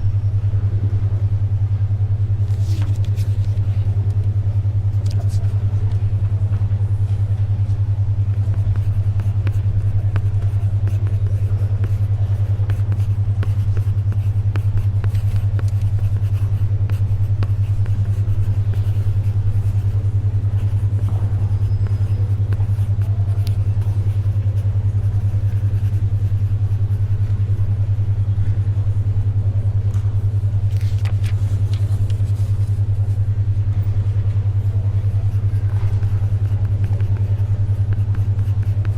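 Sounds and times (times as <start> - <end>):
pulsing low hum tone: 0.0 - 38.9
page turning rustle: 2.5 - 3.6, 30.7 - 32.7
pencil writing ticks: 8.2 - 27.8, 34.6 - 38.9.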